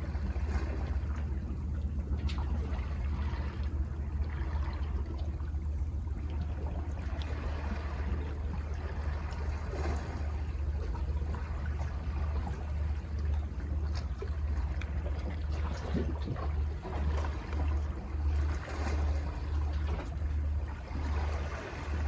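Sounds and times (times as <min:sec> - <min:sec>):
low rumble: 0:00.0 - 0:22.0
sea water washing over rocks: 0:00.0 - 0:22.0
small splashes: 0:06.3 - 0:22.0.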